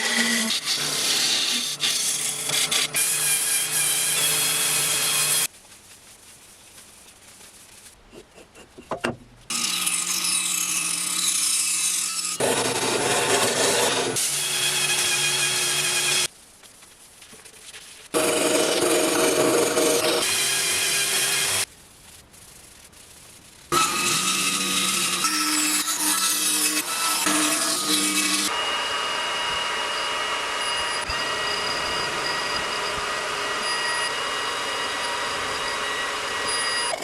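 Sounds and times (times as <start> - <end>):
tool rubbing on turning wood: 0.0 - 5.5, 7.4 - 16.3, 18.1 - 21.7
lathe hum: 18.2 - 21.6, 23.8 - 37.0.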